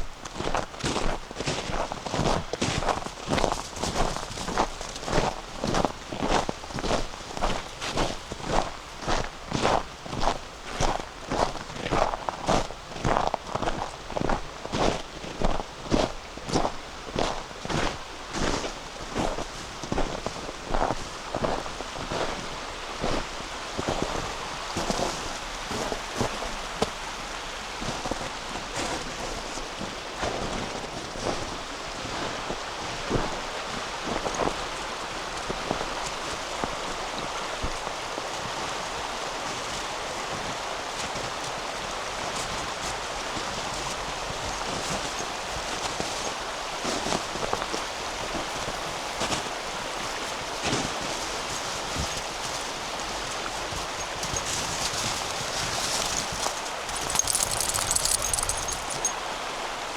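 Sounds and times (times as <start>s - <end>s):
river flowing: 52.5s - 59.9s
footsteps crunching on frozen snow: 55.8s - 59.1s.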